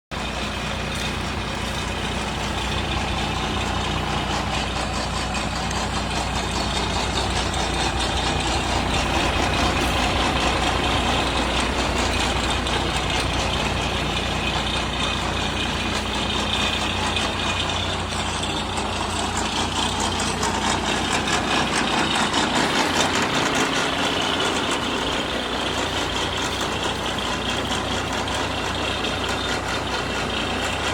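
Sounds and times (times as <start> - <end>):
truck diesel engine running: 0.1 - 30.9.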